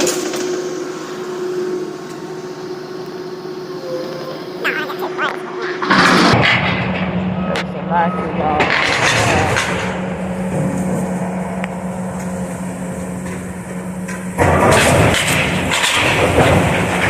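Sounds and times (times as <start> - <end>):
demolition machine engine running: 0.0 - 17.0
building material crashing down: 14.4 - 17.0.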